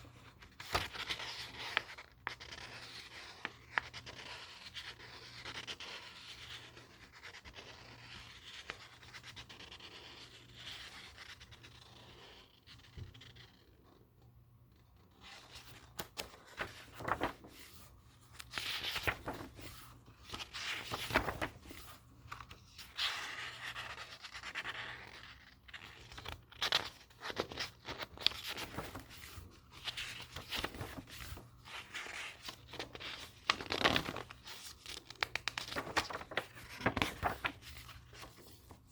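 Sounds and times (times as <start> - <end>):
book pages flipping: 0.1 - 9.0, 14.8 - 38.9
papery rubbing: 16.6 - 17.9, 35.4 - 38.9.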